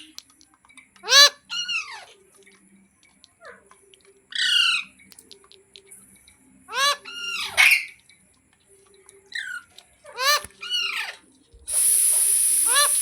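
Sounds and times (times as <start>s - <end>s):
parrot shrill calls: 1.0s - 2.1s, 6.7s - 8.0s, 9.4s - 13.0s.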